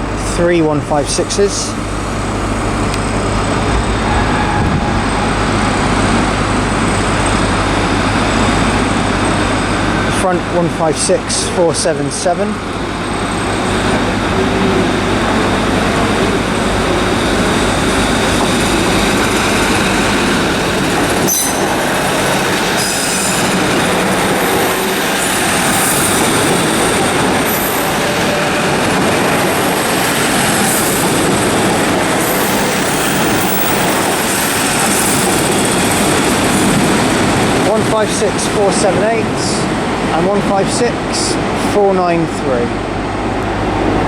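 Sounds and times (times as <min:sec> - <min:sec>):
diesel train engines running: 0:00.0 - 0:44.0
rail noise: 0:00.0 - 0:44.0
high-pitched wheel squeal: 0:03.1 - 0:07.6, 0:21.2 - 0:23.6.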